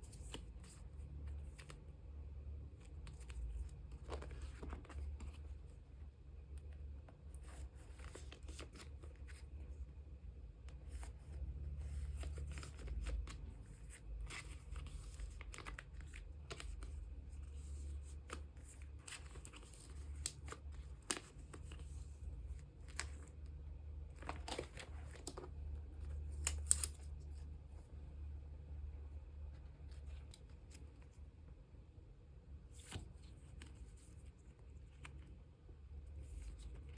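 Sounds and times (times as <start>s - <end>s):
plastic sleeves rustling and crinkling: 2.6s - 6.0s, 7.1s - 9.9s, 10.7s - 28.0s.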